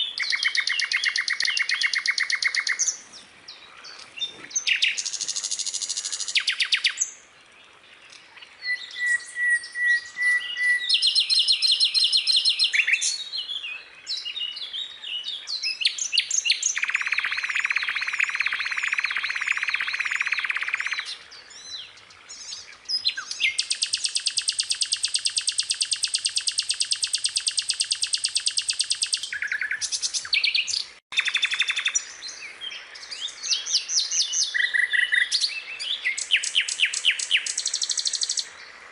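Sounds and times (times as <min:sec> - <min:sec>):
skylark singing: 0:00.0 - 0:03.0, 0:22.9 - 0:32.0.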